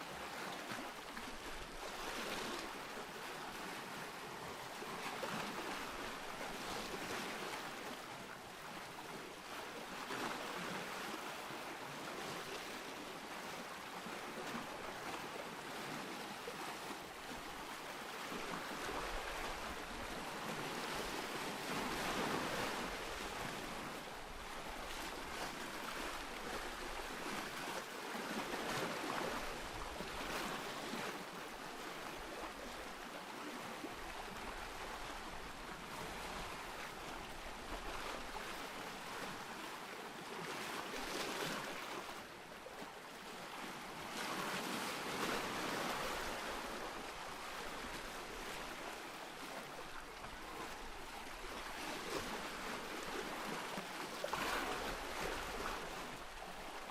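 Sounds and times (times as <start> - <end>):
ocean surf: 14.3 - 42.3.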